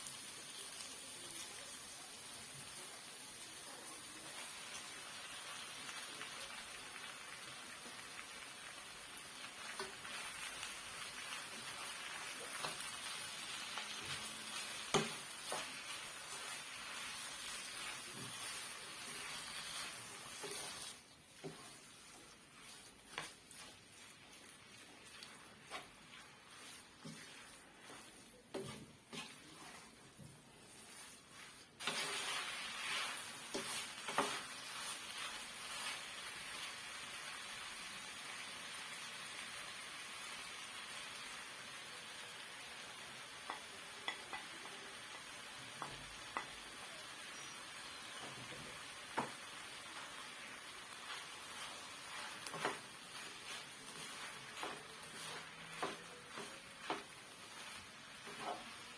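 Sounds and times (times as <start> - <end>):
filling sizzling in oil: 0.0 - 58.9
spoon stirring and scraping: 9.2 - 37.4, 43.4 - 58.9.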